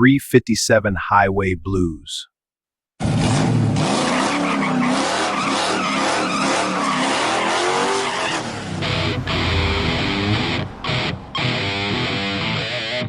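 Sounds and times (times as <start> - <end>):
car engine revving: 3.0 - 13.0
tyres squealing and skidding: 3.8 - 12.8.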